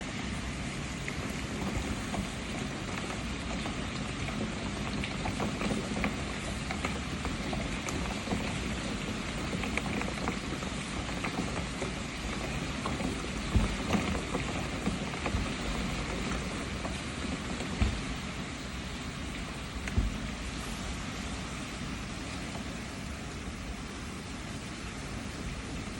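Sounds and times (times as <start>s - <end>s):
steady rain falling: 0.0s - 25.9s
low knocks: 12.2s - 20.9s.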